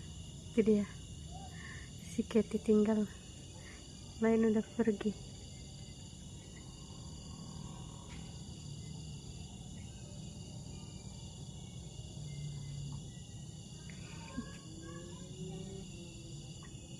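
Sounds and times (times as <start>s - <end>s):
insects chirping: 0.0s - 16.9s.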